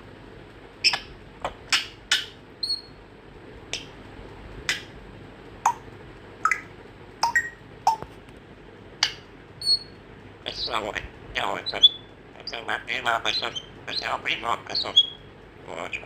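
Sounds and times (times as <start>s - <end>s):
parrot whistling: 0.8s - 1.1s, 1.7s - 3.0s, 6.4s - 8.0s, 9.0s - 10.0s, 11.6s - 15.2s
parrot clicks and squeaks: 0.8s - 3.0s, 3.7s - 4.0s, 4.7s - 5.0s, 6.4s - 8.1s, 9.0s - 10.0s, 11.7s - 12.6s.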